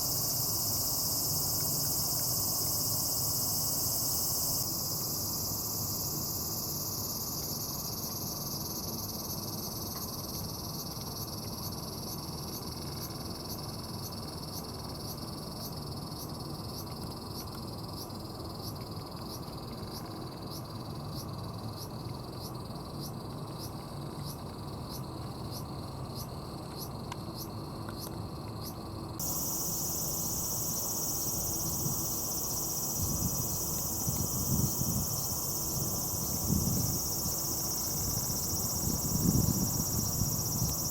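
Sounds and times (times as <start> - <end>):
insects shrilling in chorus: 29.2 - 40.9.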